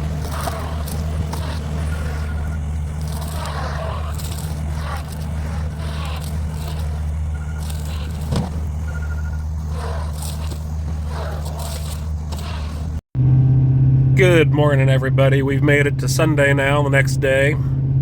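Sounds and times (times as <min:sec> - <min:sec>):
motor humming: 0:00.0 - 0:13.0
scraping and crackling: 0:00.0 - 0:13.0.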